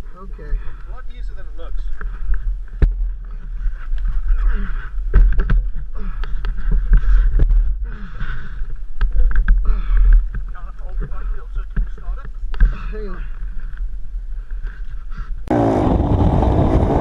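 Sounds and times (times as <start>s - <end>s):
heavy low rumble: 15.4s - 17.0s.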